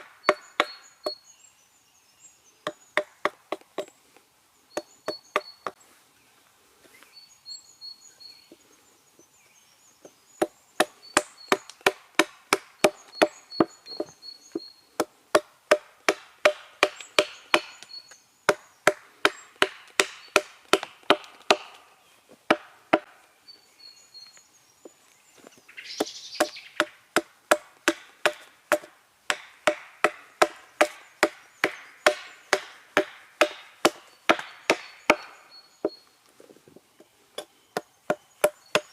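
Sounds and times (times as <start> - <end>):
hatchet chopping wood: 0.0 - 1.2, 2.6 - 3.9, 4.8 - 5.8, 10.4 - 14.2, 15.0 - 17.9, 18.5 - 21.8, 22.5 - 23.1, 26.0 - 36.0, 37.4 - 38.9
birds chirping: 0.0 - 38.9.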